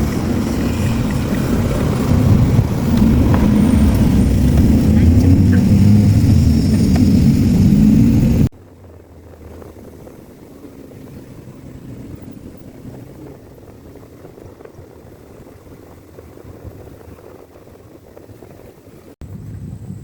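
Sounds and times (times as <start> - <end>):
low rumble: 0.0 - 17.0
vehicle engine and road noise: 0.0 - 20.0.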